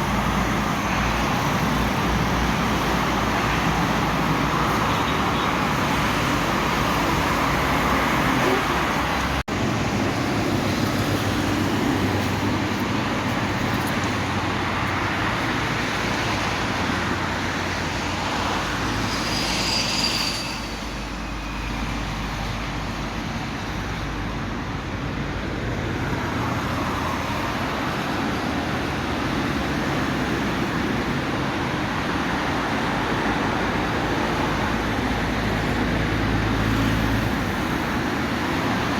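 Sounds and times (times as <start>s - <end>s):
highway traffic rushing: 0.0s - 38.9s
high-pitched squeal: 18.3s - 22.4s.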